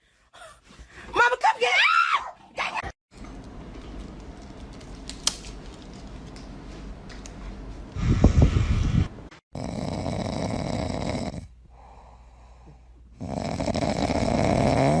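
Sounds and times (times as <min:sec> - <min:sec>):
pet snoring: 0:09.5 - 0:11.6, 0:13.2 - 0:15.0.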